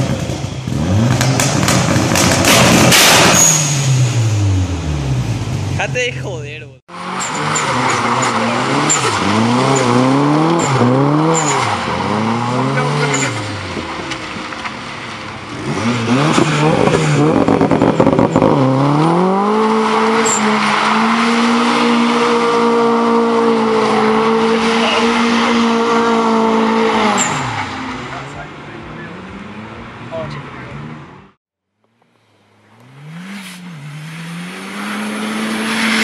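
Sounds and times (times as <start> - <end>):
car engine revving: 0.0 - 31.4, 32.4 - 36.0
tyres squealing: 7.1 - 14.0, 19.4 - 28.4.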